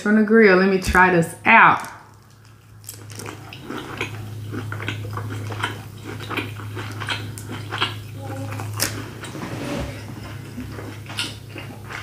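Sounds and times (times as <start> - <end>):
steady low hum: 0.0 - 12.0
mouth chewing with wet smacks: 2.1 - 9.0, 10.3 - 12.0.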